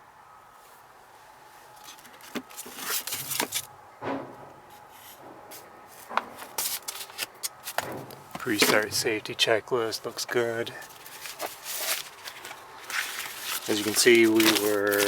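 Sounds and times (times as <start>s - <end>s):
papers rustling: 1.8s - 9.2s, 10.7s - 15.0s
light knocks: 4.0s - 6.6s.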